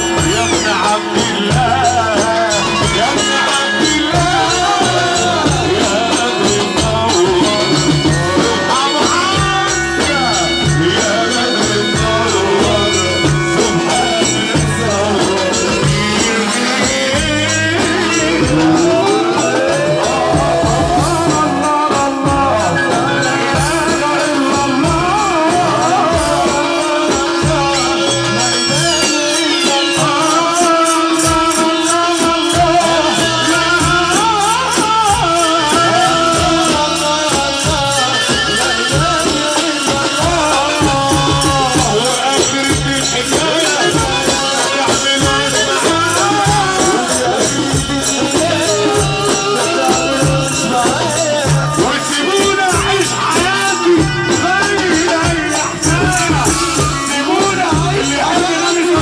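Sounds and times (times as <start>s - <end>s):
fast rattling percussion: 0.0s - 59.0s
ornamented melody line: 0.0s - 59.0s
pulsing bass beat: 3.9s - 26.6s.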